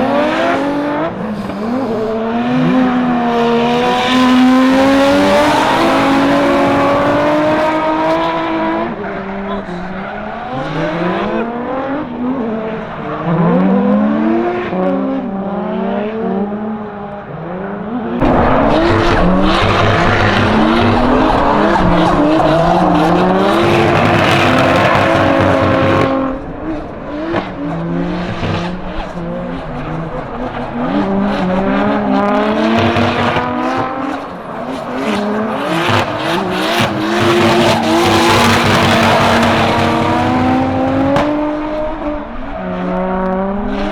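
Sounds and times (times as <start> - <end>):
car engines revving: 0.0 - 43.9.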